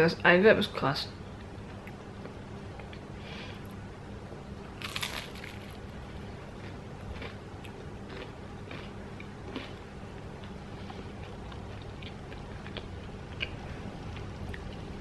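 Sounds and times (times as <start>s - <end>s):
crunching and chewing toast: 4.8s - 14.7s.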